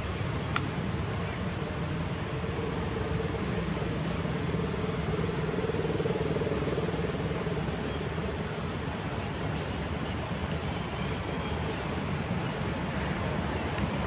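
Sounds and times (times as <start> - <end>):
background hum and hiss: 0.0 - 14.0
sharp click: 0.5 - 0.7.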